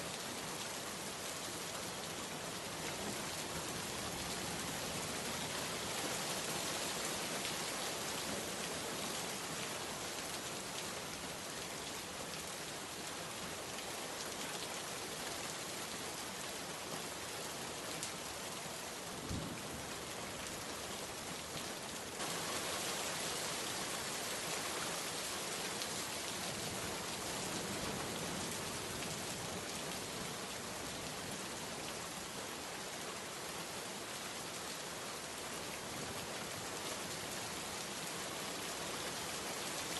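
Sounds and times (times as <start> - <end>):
heavy rain falling: 18.0 - 39.9.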